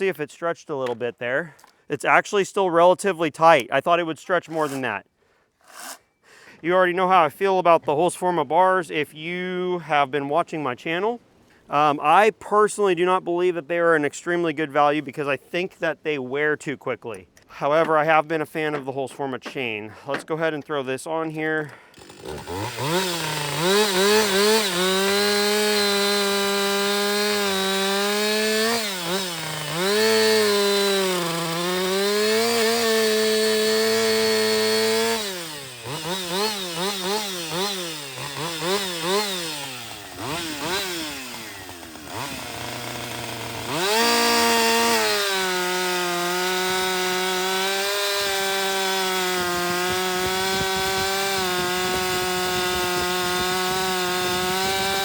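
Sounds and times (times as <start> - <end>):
chainsaw cutting wood: 4.4 - 4.9, 5.6 - 6.2, 21.7 - 55.0.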